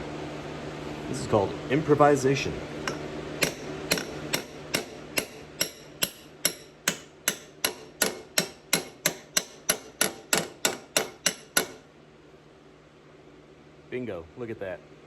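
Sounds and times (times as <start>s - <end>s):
hammer strikes on metal lid: 2.9s - 11.8s.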